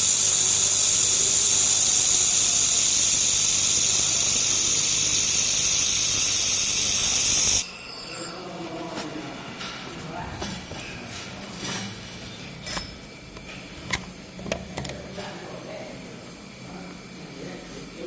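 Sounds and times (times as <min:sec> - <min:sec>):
laser welder gas hiss: 0:00.0 - 0:07.7.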